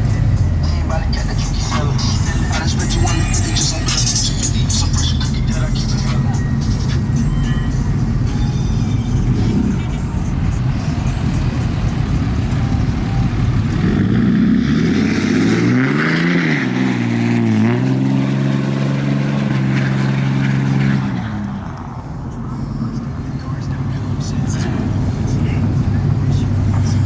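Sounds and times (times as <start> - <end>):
vehicle engine rumble: 0.0 - 27.0.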